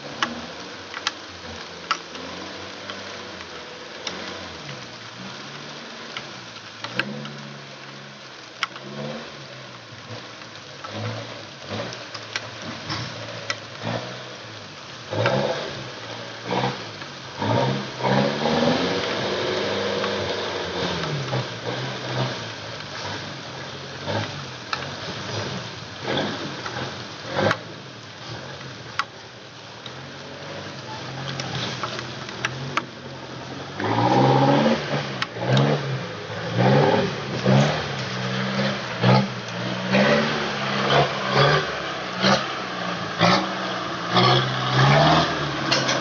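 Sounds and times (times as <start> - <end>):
diesel truck engine revving: 8.7 - 28.6, 29.6 - 46.0.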